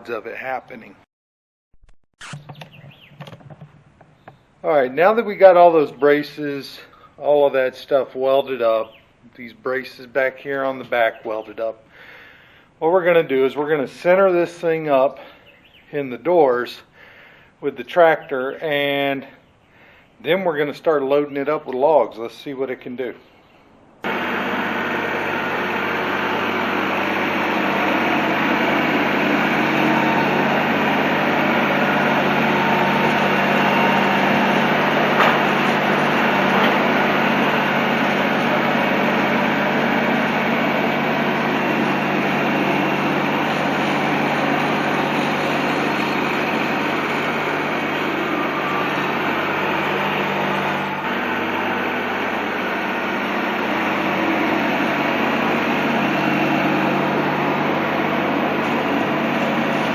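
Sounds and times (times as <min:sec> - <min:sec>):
tractor engine running: 0:24.0 - 0:59.9.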